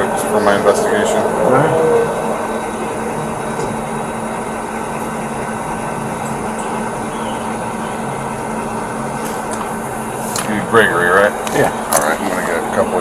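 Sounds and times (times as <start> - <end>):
background rush: 0.0 - 11.9
mechanical hum: 0.0 - 13.0.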